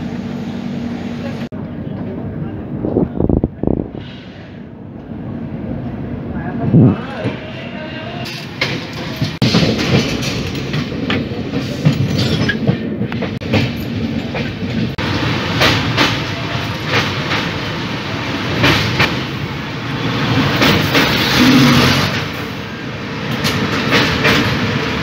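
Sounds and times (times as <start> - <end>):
train rumble and rush: 0.0 - 25.0.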